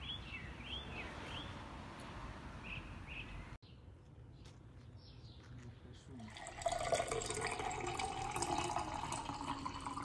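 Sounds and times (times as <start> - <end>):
small bird chirping: 0.0 - 1.6, 2.6 - 6.2
outdoor background noise: 0.0 - 10.0.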